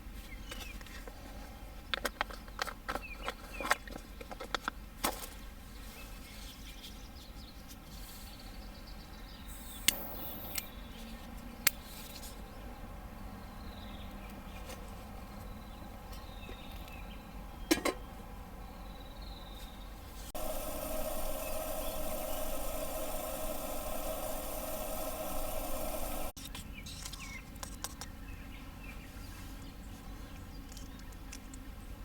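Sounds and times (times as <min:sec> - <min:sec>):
faint bird chirps: 0:20.4 - 0:26.3
fire pops: 0:20.4 - 0:26.3
wood fire crackling: 0:20.4 - 0:26.4.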